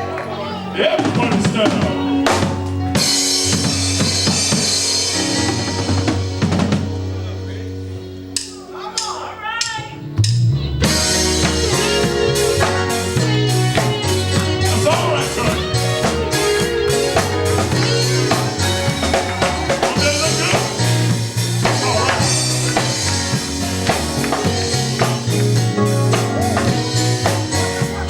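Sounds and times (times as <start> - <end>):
vocals: 0.0 - 2.9, 11.7 - 28.0
electric guitar: 0.0 - 8.5, 9.9 - 28.0
bass guitar: 0.0 - 28.0
drum kit beat: 0.0 - 28.0
gospel band playing: 0.0 - 28.0.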